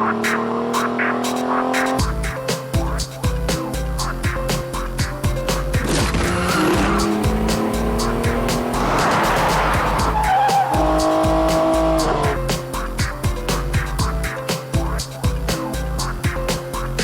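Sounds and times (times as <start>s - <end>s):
car driving hard: 0.0s - 2.0s, 5.8s - 12.4s
background music: 0.0s - 17.0s
tyres screeching: 0.0s - 17.0s.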